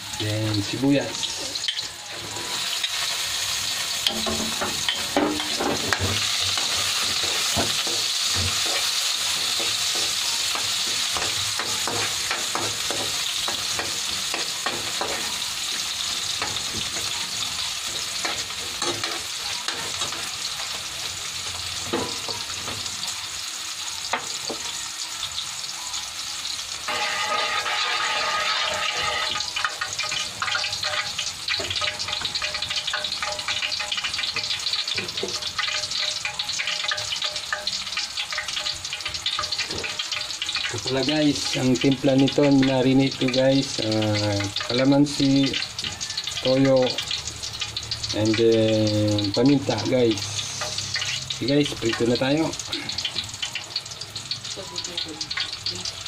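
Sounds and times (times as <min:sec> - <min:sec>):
garlic and onion sizzling in oil: 0:00.0 - 0:56.0
metal spoon scraping pan: 0:01.3 - 0:20.8, 0:26.9 - 0:41.6.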